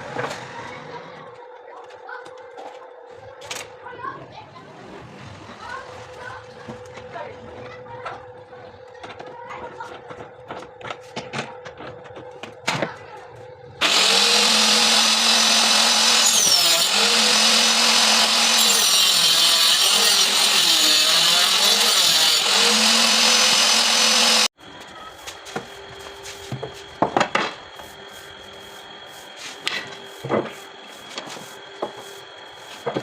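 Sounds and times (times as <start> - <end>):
table saw cutting wood: 13.8 - 24.6, 25.6 - 33.0.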